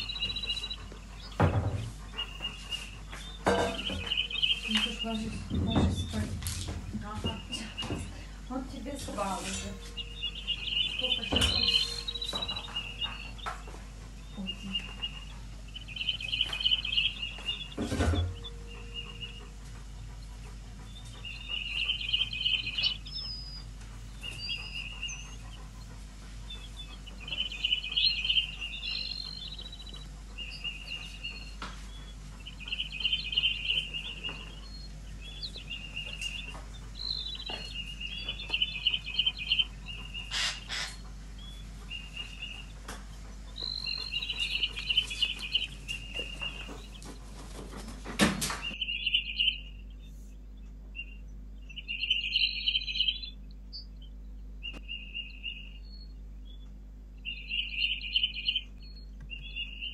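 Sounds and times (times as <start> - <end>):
bird chirping: 0.0 - 59.9
sharp knocks: 3.4 - 4.2.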